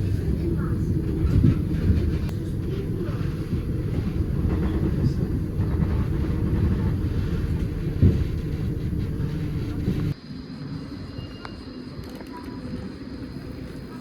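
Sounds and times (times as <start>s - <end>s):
vehicle rumble: 0.0s - 10.2s.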